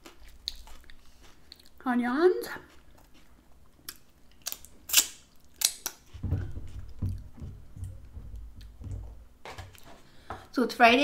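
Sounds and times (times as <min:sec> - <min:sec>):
wet chewing: 0:00.0 - 0:01.8, 0:02.4 - 0:08.0.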